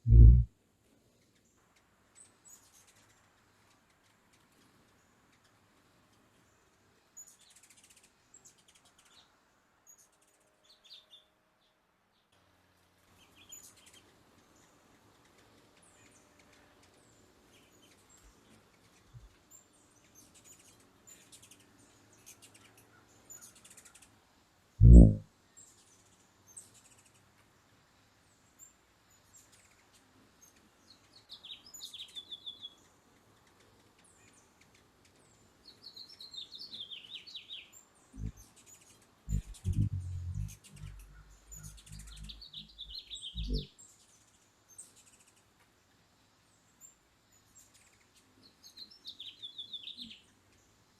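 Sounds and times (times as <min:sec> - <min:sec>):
low thumps and rumbling: 0:00.0 - 0:00.5, 0:24.8 - 0:25.2, 0:39.3 - 0:42.4
small birds chirping: 0:00.0 - 0:11.8, 0:13.0 - 0:50.9
descending trilled bird calls: 0:24.8 - 0:25.2, 0:38.2 - 0:43.8.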